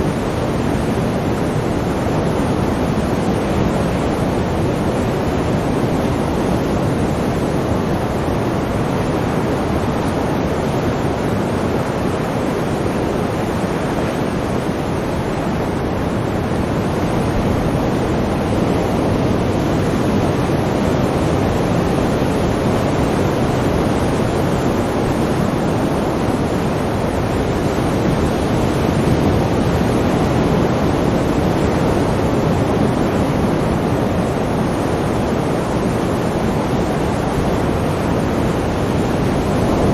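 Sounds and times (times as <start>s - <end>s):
sea waves and surf: 0.0s - 39.9s.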